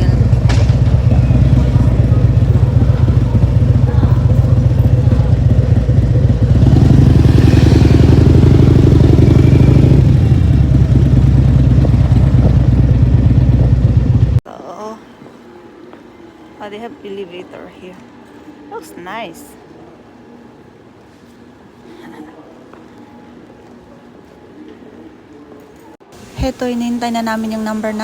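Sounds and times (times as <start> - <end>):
motorcycle engine running: 0.0 - 14.4.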